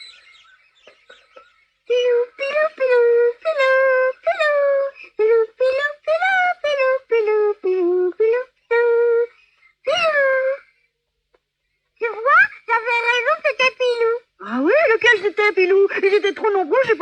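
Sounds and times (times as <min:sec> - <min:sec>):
faint bird chirps: 0:00.0 - 0:02.6
child singing: 0:01.9 - 0:10.7, 0:12.0 - 0:17.0.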